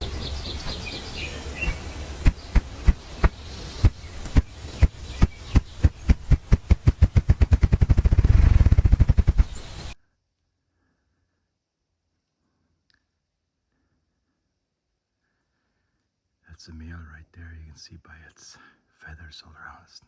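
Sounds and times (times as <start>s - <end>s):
faint bird chirps: 0.0s - 6.3s
grouse wingbeat thumps: 0.0s - 10.0s.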